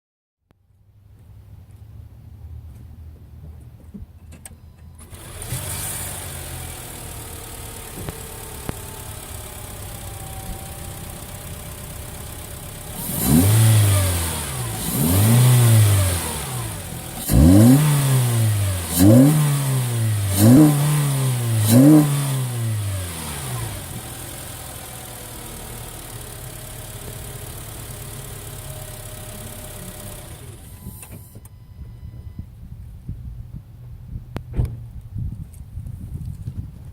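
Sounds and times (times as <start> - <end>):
car engine starting and revving: 4.9 - 31.4.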